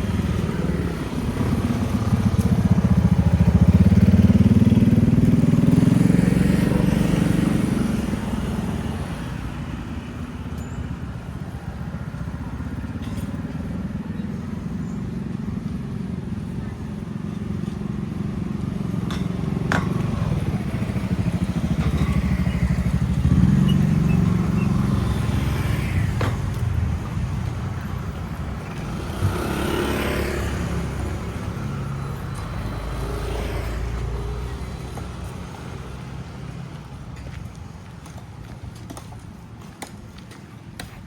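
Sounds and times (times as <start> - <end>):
motorcycle passing: 0.0 - 10.3, 11.8 - 38.0
vehicle passing: 18.2 - 37.1.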